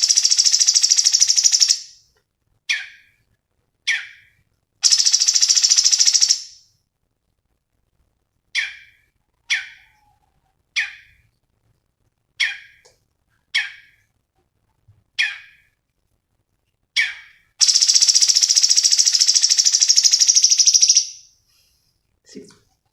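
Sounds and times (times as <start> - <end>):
rapid high bird trill: 0.0 - 2.0, 4.8 - 6.6, 17.0 - 21.3.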